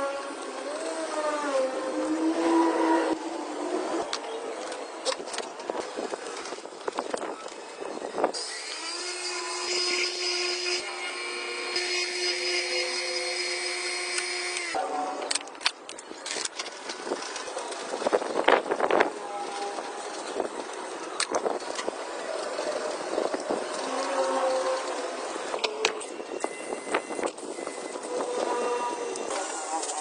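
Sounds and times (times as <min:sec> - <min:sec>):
electric power tool running: 0:08.3 - 0:14.8.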